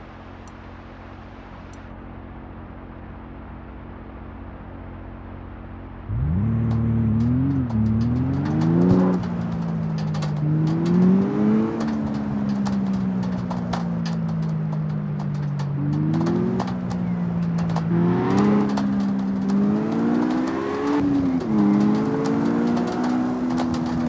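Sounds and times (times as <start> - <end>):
car engine accelerating: 6.0 - 24.0.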